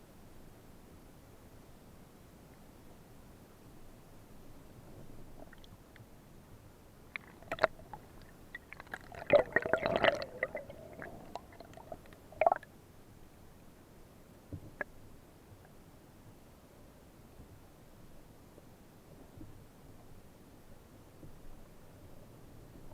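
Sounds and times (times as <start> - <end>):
underwater clicks: 7.1 - 12.6
underwater gurgling: 7.1 - 12.7.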